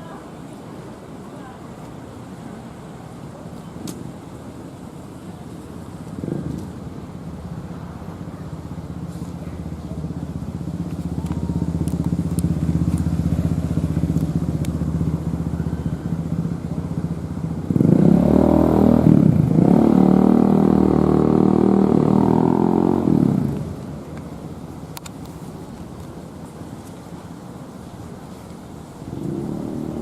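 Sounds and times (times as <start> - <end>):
vehicle engine revving: 10.7 - 23.8, 29.1 - 30.0.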